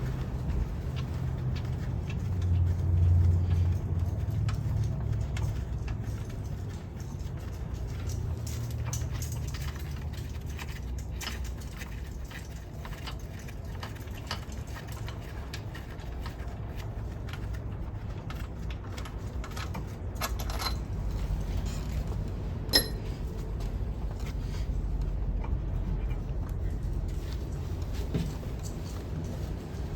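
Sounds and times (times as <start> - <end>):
metal tools clicking and scraping: 2.4 - 15.2, 19.4 - 23.5
low hum: 21.8 - 27.8
ringing metal clink: 22.7 - 23.2.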